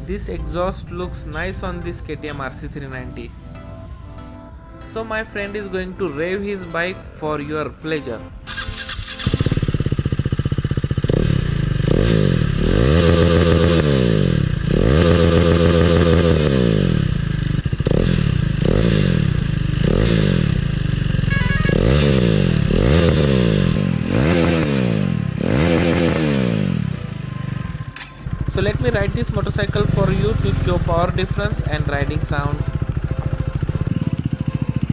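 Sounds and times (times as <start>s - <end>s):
motorcycle engine revving: 8.5s - 34.9s.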